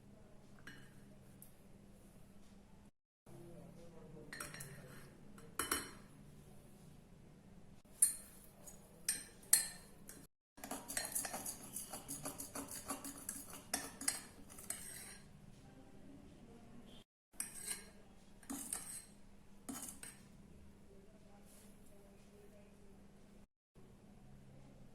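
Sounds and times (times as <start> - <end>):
spoon clinking against a mug: 9.1 - 15.2.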